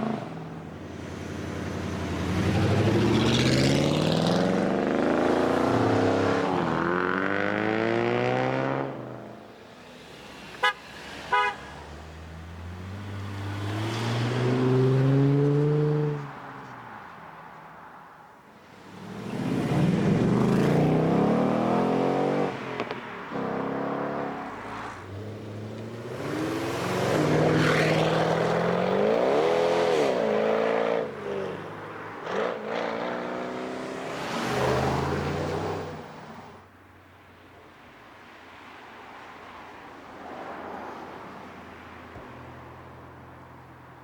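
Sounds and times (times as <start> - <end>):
car engines accelerating hard: 0.0 - 9.3, 10.0 - 16.3, 18.8 - 36.6.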